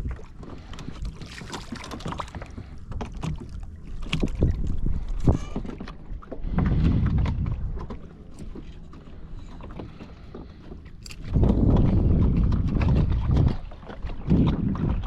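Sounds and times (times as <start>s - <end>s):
small knocks and splashes: 0.0s - 15.0s
water against kayak hull: 0.0s - 15.0s
low rumble: 6.2s - 8.6s, 10.5s - 15.0s.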